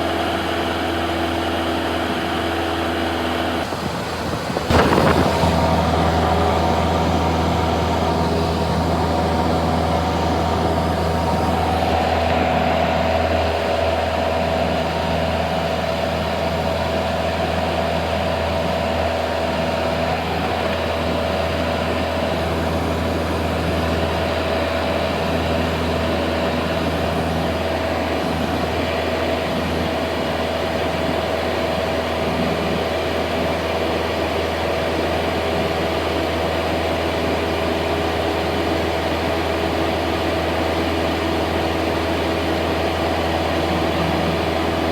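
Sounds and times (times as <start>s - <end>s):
propeller plane engine droning: 0.0s - 44.9s.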